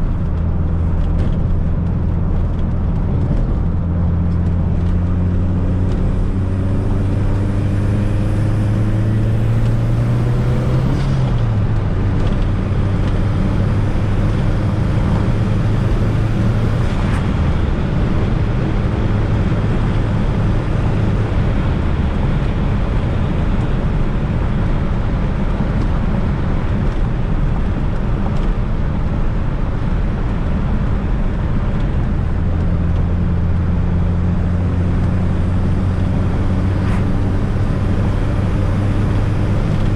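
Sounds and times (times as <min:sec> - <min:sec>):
car engine accelerating: 0:00.0 - 0:39.9
road and tyre noise: 0:00.0 - 0:39.9.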